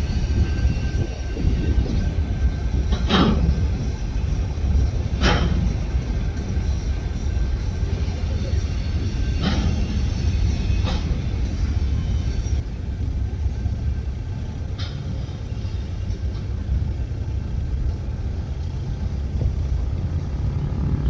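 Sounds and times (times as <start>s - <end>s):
metallic wheel squeal: 0.0s - 12.6s, 14.9s - 17.1s
freight car wheels rumbling: 0.0s - 21.0s.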